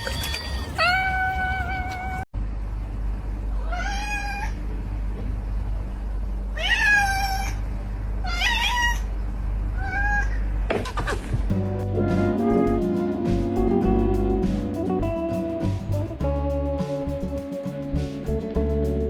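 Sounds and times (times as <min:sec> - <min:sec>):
low hum: 0:00.1 - 0:10.7, 0:11.3 - 0:19.0
cat meowing: 0:03.6 - 0:04.5, 0:06.6 - 0:07.5.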